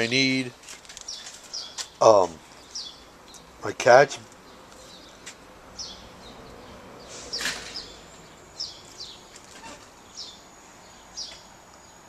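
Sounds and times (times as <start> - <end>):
background hiss: 0.0 - 12.0
small birds chirping: 0.0 - 12.0.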